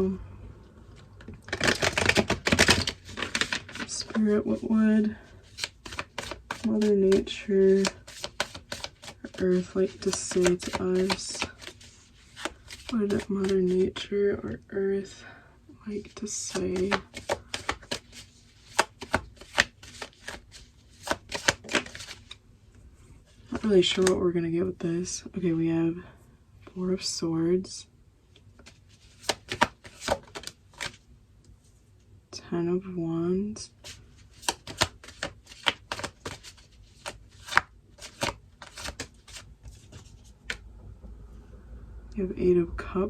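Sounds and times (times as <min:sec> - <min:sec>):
cards being shuffled: 0:01.4 - 0:13.9, 0:16.2 - 0:22.4, 0:28.6 - 0:31.0, 0:33.8 - 0:40.6.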